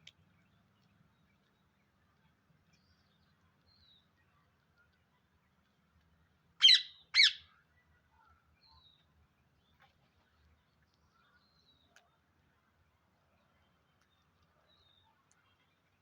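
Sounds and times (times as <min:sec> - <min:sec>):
parakeet loud calls: 0:06.6 - 0:07.4.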